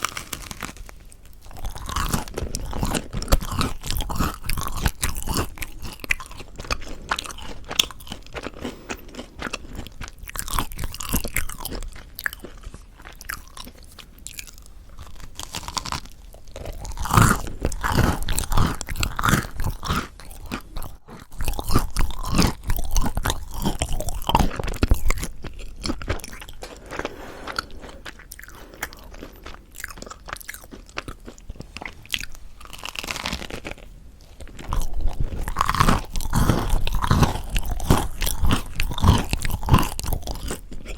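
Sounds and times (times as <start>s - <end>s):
crunchy bread being chewed: 0.0s - 40.9s.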